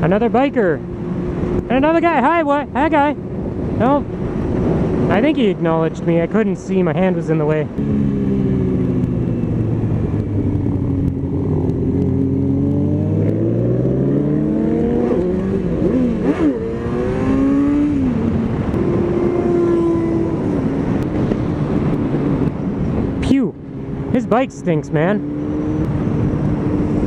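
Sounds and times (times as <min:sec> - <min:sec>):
road and wind noise: 0:00.0 - 0:27.0
motorcycle engine accelerating: 0:07.7 - 0:27.0.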